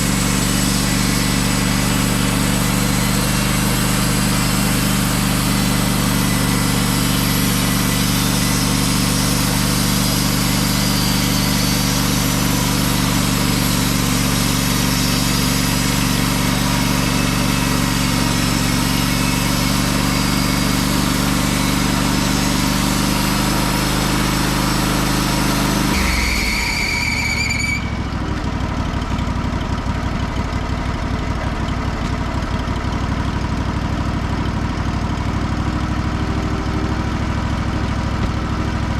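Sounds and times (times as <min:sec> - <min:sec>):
band blade cutting through log: 0:00.0 - 0:27.0
sawmill engine running: 0:00.0 - 0:38.9
brief high squeal: 0:07.8 - 0:23.8, 0:24.9 - 0:28.3, 0:35.8 - 0:37.7.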